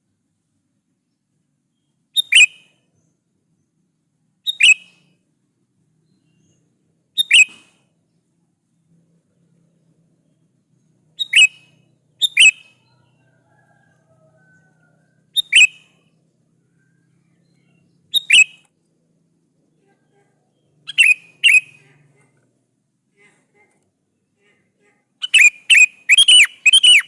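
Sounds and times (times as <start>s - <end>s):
bird calling: 11.2s - 16.0s, 16.8s - 18.7s, 20.5s - 22.4s, 25.2s - 27.0s.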